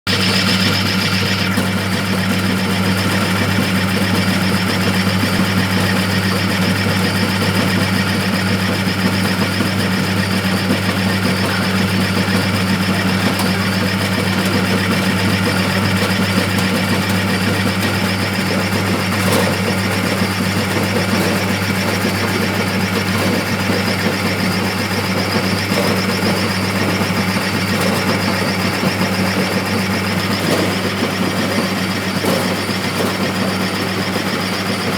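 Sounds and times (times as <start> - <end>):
machine rattling: 0.0 - 7.8, 8.5 - 34.9
electric motor hum: 0.1 - 5.6.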